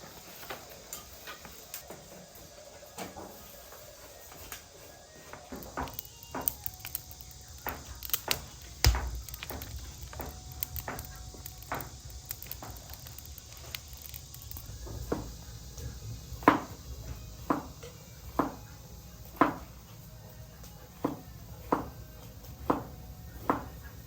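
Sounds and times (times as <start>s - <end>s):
irregular knocks and clicks: 5.5s - 16.8s.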